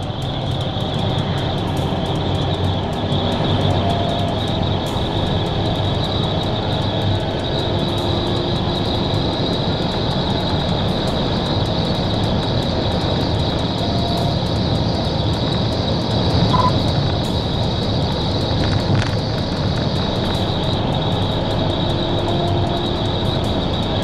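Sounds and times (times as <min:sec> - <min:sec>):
car road and wind noise: 0:00.0 - 0:24.0.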